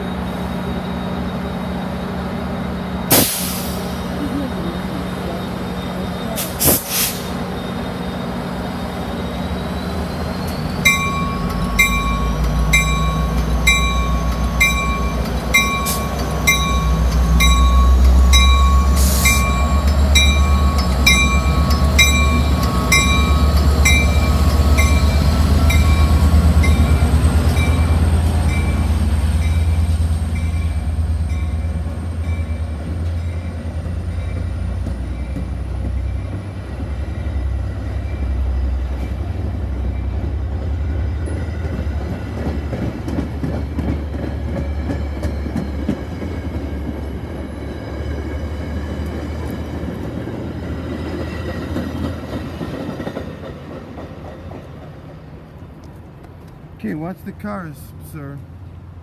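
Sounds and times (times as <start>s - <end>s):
diesel train rumbling: 0.0s - 59.0s
train bell ringing: 7.3s - 41.8s.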